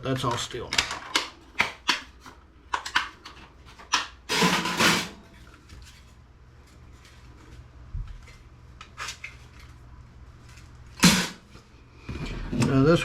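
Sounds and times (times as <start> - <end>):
loud sharp metallic clank: 11.0 - 11.4.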